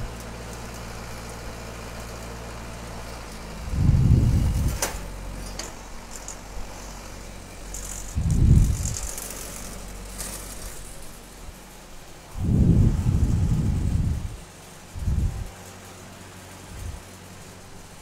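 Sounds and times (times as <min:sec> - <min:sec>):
steady low hum: 0:00.0 - 0:18.0
wind gusts buffeting microphone: 0:03.6 - 0:05.0, 0:08.0 - 0:09.2, 0:12.3 - 0:15.6.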